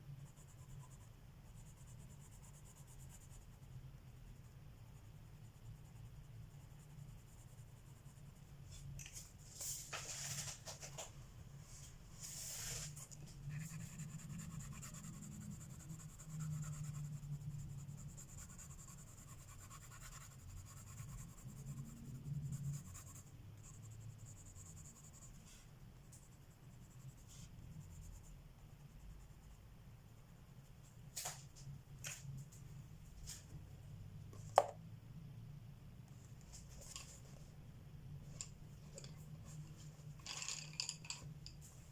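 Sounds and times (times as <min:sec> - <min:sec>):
pencil scratching on paper: 0:00.2 - 0:08.9, 0:12.2 - 0:29.6.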